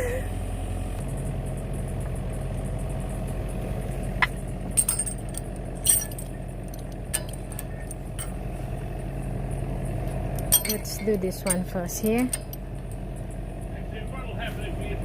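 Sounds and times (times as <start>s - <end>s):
engine idling: 0.0s - 15.0s
metal parts clinking: 4.7s - 8.4s, 10.3s - 13.0s.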